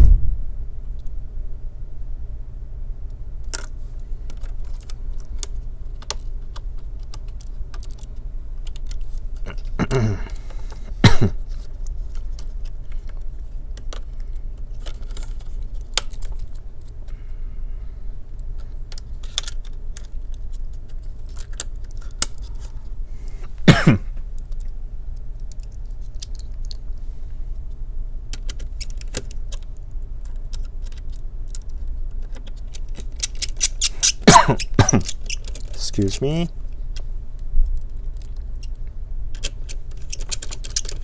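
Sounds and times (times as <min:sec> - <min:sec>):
loud knock: 0:00.0 - 0:00.7
steady low hum: 0:00.0 - 0:14.8, 0:22.1 - 0:30.3, 0:31.2 - 0:41.0
hand tools clicking and clinking: 0:32.4 - 0:36.5, 0:39.4 - 0:41.0.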